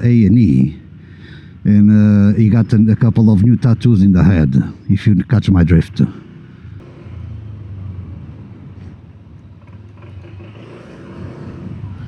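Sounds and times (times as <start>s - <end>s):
small motorcycle engine humming: 5.6s - 12.0s.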